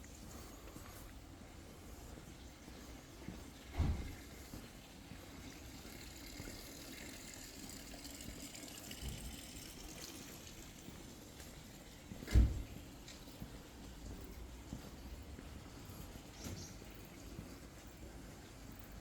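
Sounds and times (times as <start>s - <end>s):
running water: 0.0s - 19.0s
dull low thump: 3.7s - 4.4s, 12.2s - 12.8s.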